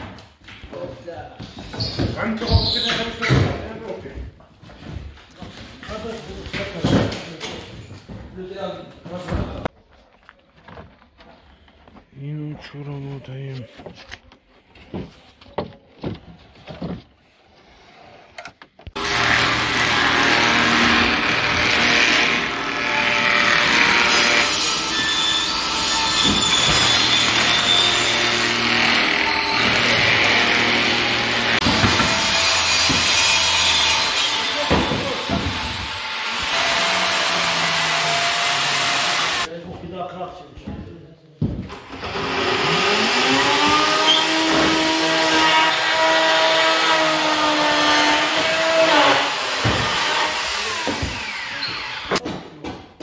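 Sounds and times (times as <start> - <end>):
power tool cutting wood: 18.9 - 39.5, 41.7 - 52.2.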